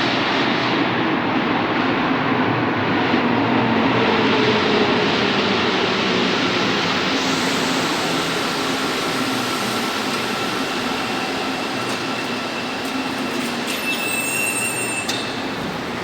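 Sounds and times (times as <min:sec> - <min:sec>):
train running through station: 0:00.0 - 0:16.0
high-pitched squeal: 0:06.1 - 0:16.0.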